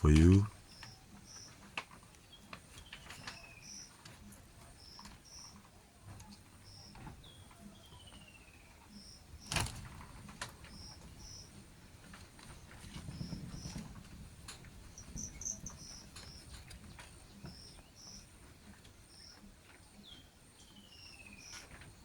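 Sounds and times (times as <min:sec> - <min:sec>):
birds chirping: 0:00.0 - 0:09.6, 0:14.9 - 0:22.0.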